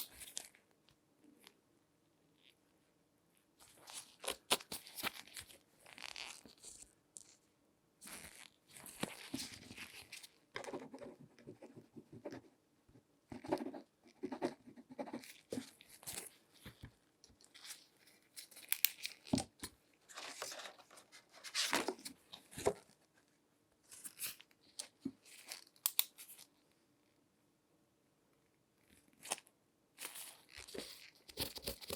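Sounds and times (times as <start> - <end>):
gloved hands rustling and crinkling: 3.6 - 7.4, 8.0 - 10.4.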